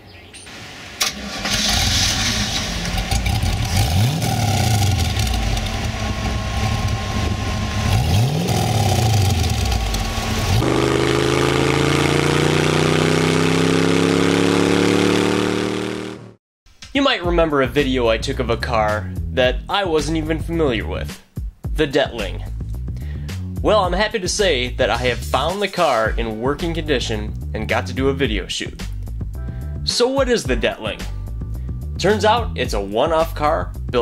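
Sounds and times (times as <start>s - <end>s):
car engine idling and revving: 0.5s - 16.4s
car engine starting: 0.5s - 16.4s
car engine under load driving: 0.5s - 16.4s.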